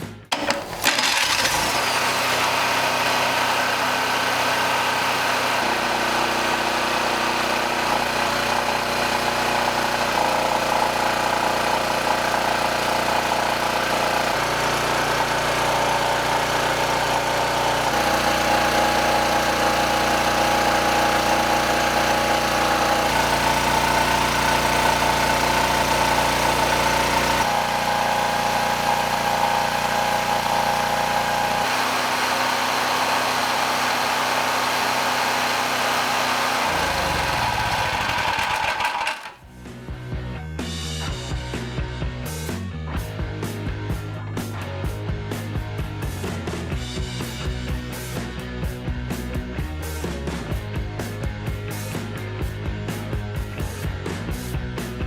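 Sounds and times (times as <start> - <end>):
generator engine running: 0.3 - 39.6.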